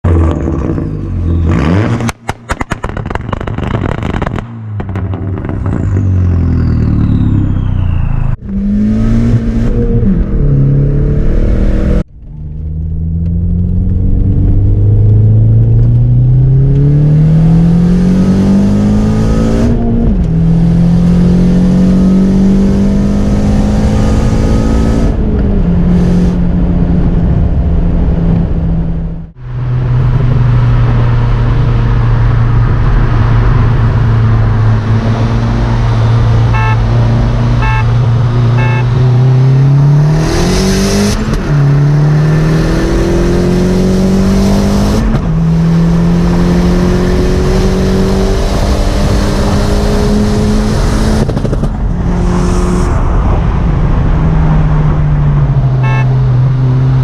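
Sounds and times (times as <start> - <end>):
car engine revving: 0.0 - 57.0
engine accelerating through gears: 4.4 - 26.5.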